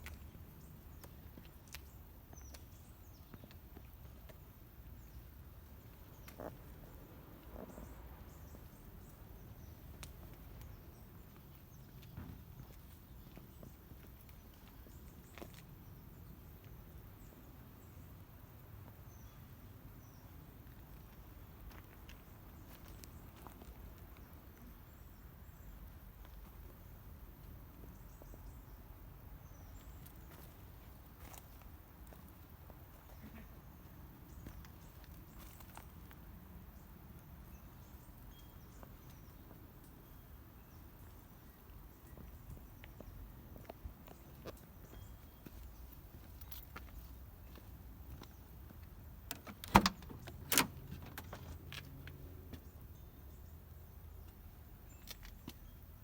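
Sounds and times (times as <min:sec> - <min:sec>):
faint footsteps: 0:05.6 - 0:16.8, 0:41.0 - 0:52.7.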